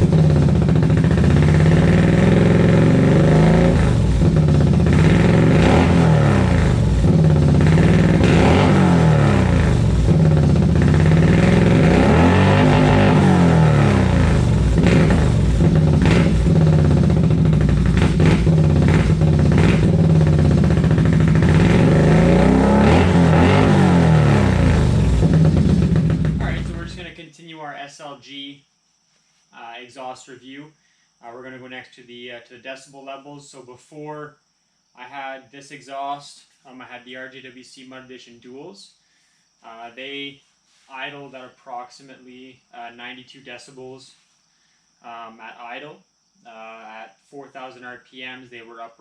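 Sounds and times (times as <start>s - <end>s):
atv engine idling with throttle blips: 0.0s - 27.2s.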